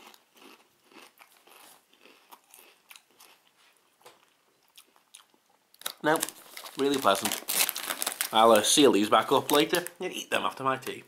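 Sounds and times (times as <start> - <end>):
person chewing crunchy crisps: 0.0 - 8.7.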